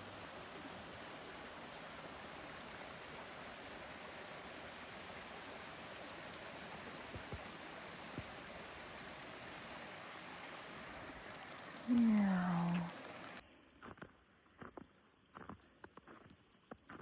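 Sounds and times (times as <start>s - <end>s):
creek water rushing: 0.0s - 13.4s.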